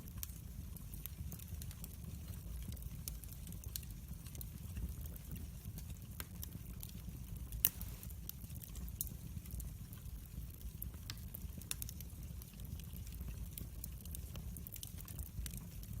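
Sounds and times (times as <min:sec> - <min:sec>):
low fire rumble: 0:00.0 - 0:16.0
wood fire crackling and popping: 0:00.0 - 0:16.0.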